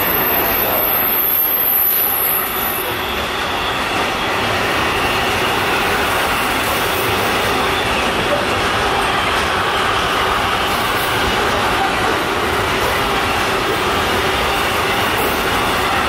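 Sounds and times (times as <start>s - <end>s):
freight train rumbling past: 0.0s - 16.0s
train wheel whine: 0.0s - 16.0s.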